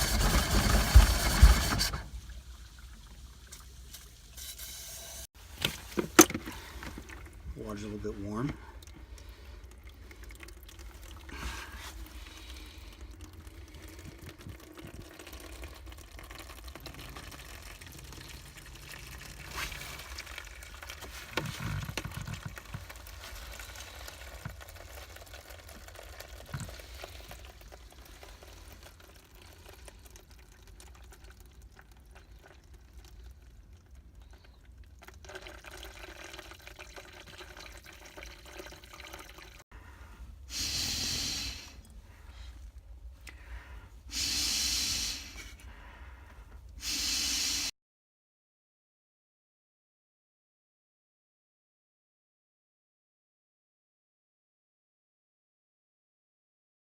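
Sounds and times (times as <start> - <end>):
water running and trickling: 0.0 - 39.7.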